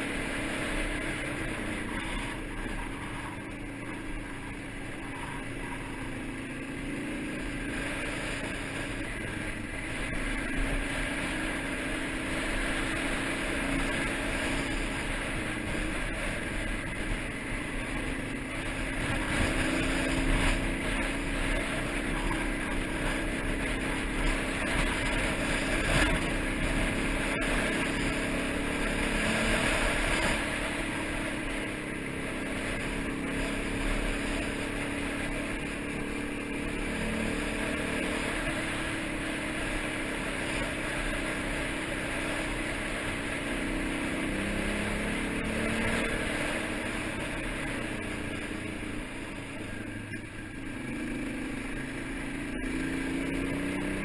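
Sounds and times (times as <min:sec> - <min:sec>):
motorcycle engine running: 0:00.0 - 0:54.0
road noise: 0:00.0 - 0:54.0.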